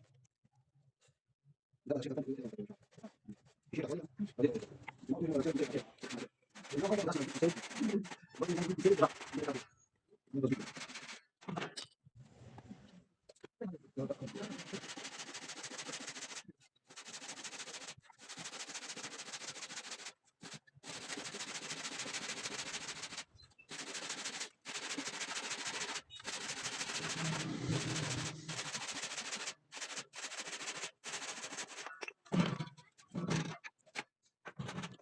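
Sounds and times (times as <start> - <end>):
electric saw cutting wood: 26.5 - 29.1.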